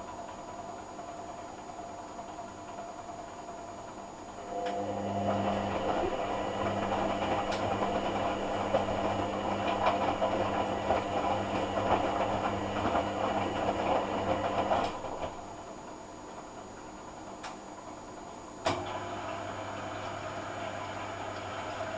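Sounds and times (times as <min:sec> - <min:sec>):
washing machine humming: 0:04.3 - 0:15.4, 0:18.4 - 0:21.9
washing machine clicks and rattles: 0:06.4 - 0:09.3, 0:18.6 - 0:21.9.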